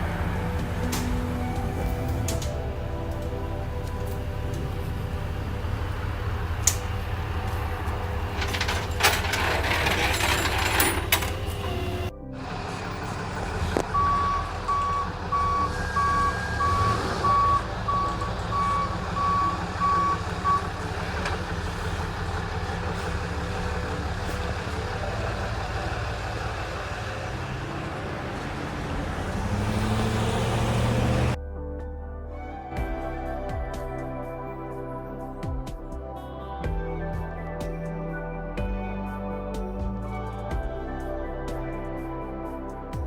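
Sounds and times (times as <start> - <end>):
truck engine running: 0.0 - 31.4
truck reversing alarm beeping: 0.0 - 31.4.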